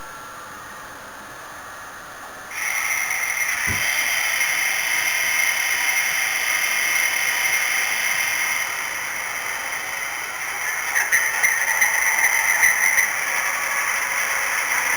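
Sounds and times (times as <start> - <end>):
low thump: 3.7 - 3.9.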